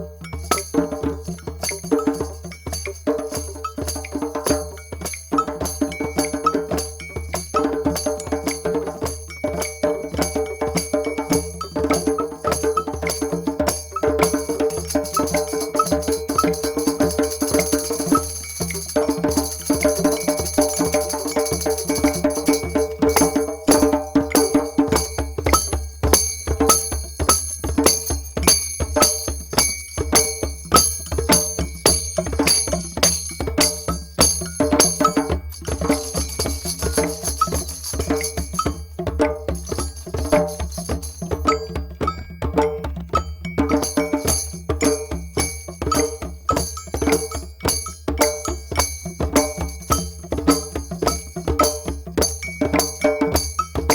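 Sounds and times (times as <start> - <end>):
drums struck in fast rhythm: 0.0 - 53.9
jingling bell-like percussion: 0.0 - 53.9.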